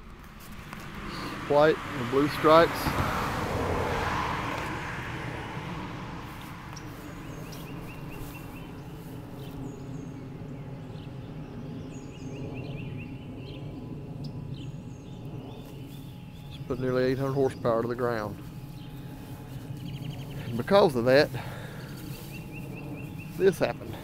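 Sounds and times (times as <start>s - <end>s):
songbirds chirping: 0.0s - 24.0s
steady low hum: 0.0s - 24.0s.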